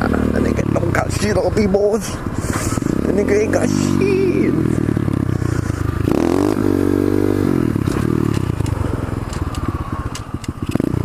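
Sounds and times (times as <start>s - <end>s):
small motorcycle engine revving: 2.4s - 11.0s
engine ticking and clatter: 7.8s - 11.0s.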